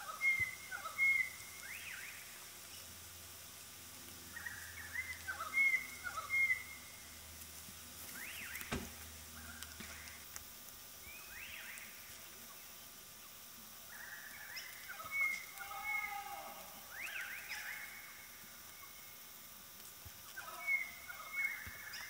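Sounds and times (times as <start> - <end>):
birds chirping and whistling: 0.0 - 2.9, 4.3 - 7.0, 8.1 - 10.2, 11.0 - 12.0, 13.9 - 18.1.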